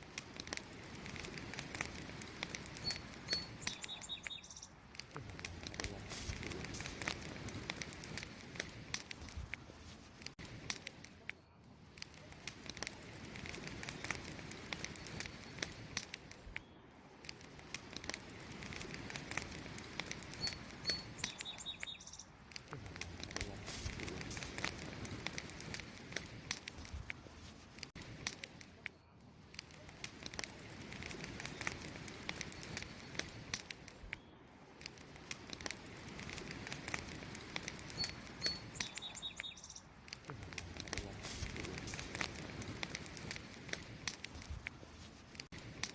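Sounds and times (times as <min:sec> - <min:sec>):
wood fire crackling and popping: 0:00.0 - 0:45.9
bird chirp: 0:02.8 - 0:04.8, 0:20.3 - 0:22.4, 0:37.9 - 0:39.9.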